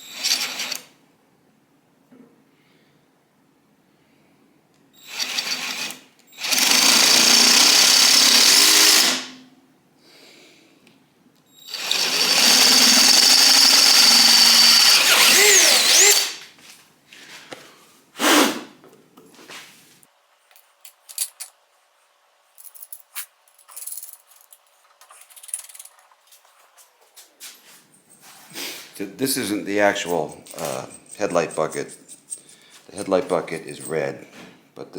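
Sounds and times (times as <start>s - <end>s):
electric power drill boring into metal: 0.0s - 0.8s, 5.0s - 9.4s, 11.7s - 16.4s
small clicks of handling parts: 20.5s - 21.6s, 22.6s - 26.5s.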